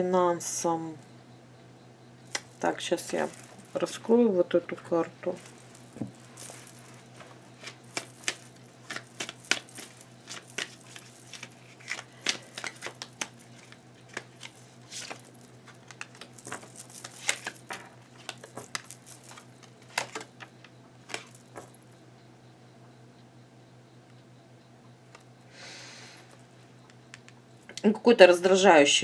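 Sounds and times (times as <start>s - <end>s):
steady low hum: 0.0s - 27.8s
cards clicking and rattling: 5.4s - 20.5s, 21.1s - 21.8s.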